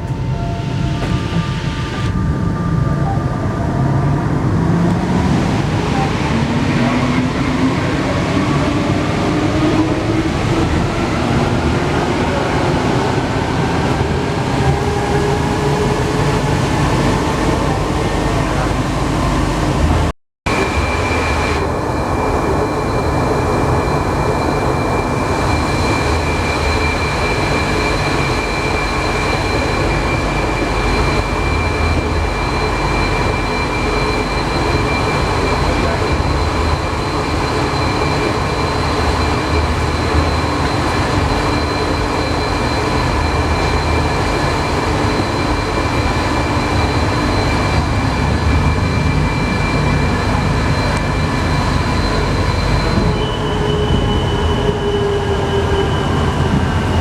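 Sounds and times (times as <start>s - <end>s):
metro train rumbling: 0.0s - 57.0s
high whines: 11.9s - 57.0s.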